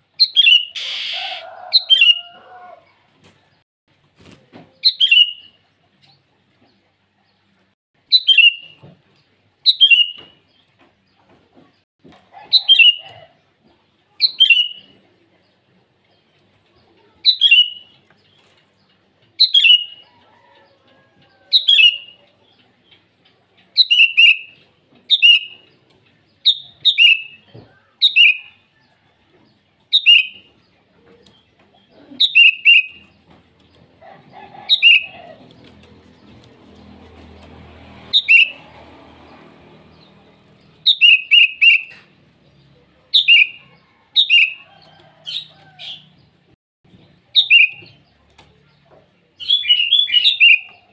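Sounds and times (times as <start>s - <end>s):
bird giving sharp calls: 0.3s - 2.3s, 38.1s - 38.6s.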